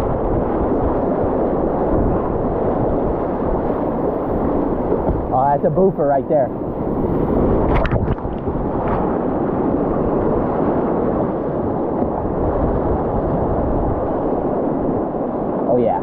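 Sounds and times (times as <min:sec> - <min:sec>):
water splashes: 0:07.0 - 0:14.4.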